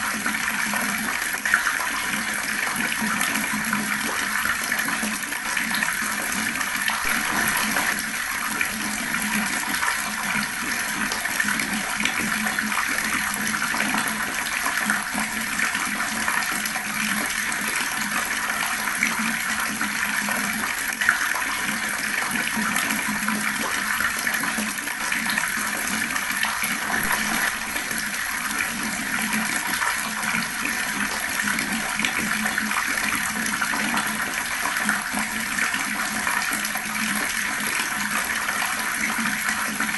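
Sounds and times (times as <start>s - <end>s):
water tap running: 5.1s - 21.8s, 25.1s - 37.6s.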